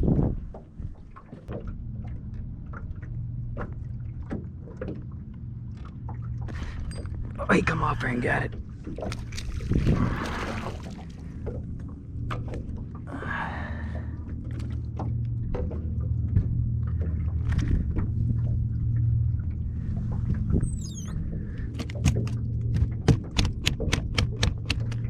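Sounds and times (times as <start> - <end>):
water splashing: 0.0 - 20.6
steady low hum: 0.0 - 25.0
clicks and knocks: 21.7 - 25.0
quick clicks: 23.4 - 25.0.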